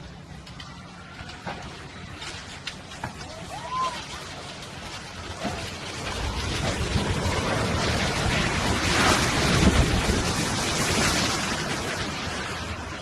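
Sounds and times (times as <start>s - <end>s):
building rumbling in earthquake: 0.0s - 13.0s.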